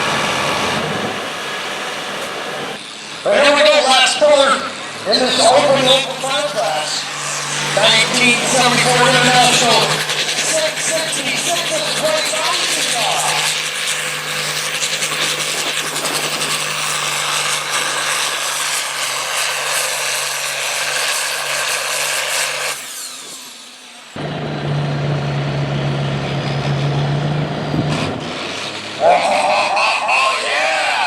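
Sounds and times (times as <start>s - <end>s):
tractor engine running hard: 0.0s - 31.0s.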